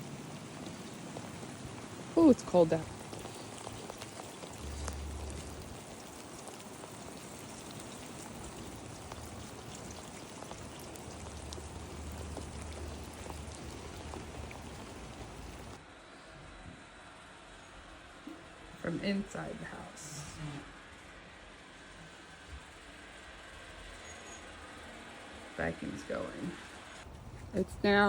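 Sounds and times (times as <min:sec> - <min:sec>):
low rumbles: 0:00.0 - 0:15.8
wet snow and rain hissing: 0:00.0 - 0:28.0.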